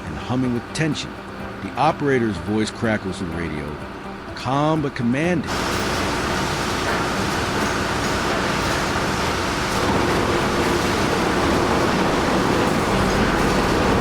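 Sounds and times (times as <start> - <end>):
heavy machinery rumble: 5.5 - 14.0.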